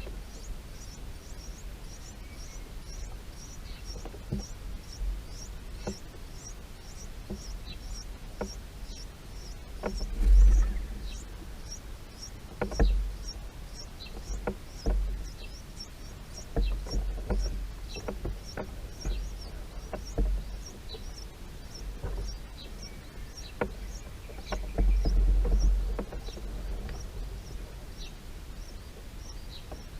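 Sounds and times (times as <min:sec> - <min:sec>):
birds chirping: 0:00.0 - 0:29.9
low rumble: 0:10.0 - 0:11.9.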